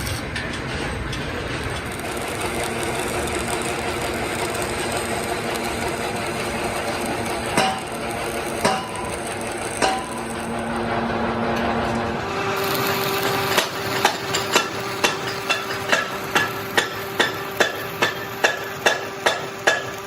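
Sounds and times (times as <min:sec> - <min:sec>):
workshop machinery droning: 0:00.0 - 0:20.0.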